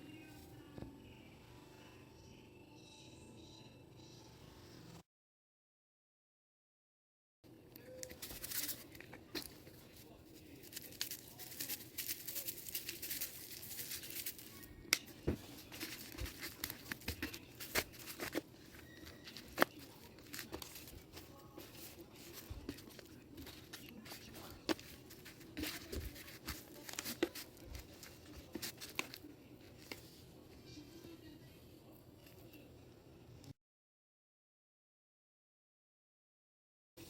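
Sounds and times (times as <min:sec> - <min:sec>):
rustling and crinkling handling: 0:08.0 - 0:30.3.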